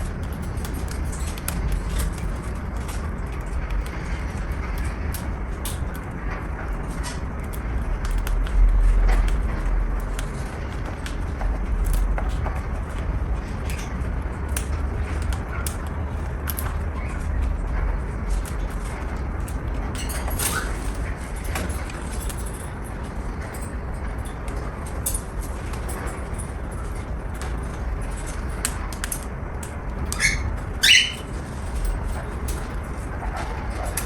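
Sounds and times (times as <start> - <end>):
cockatiel calls: 30.1 - 31.3.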